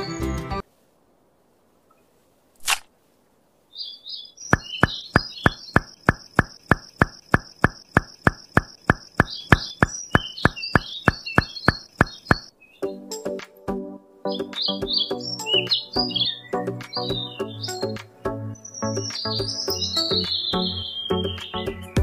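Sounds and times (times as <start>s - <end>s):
birds chirping: 0.0s - 0.6s, 3.7s - 13.2s, 14.3s - 22.0s
steady knocking: 4.6s - 12.5s.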